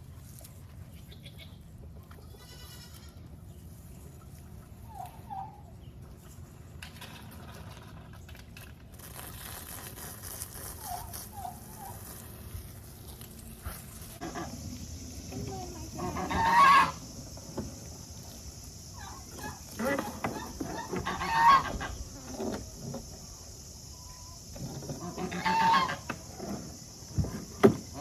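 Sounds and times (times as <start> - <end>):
hiss: 9.0 - 21.0.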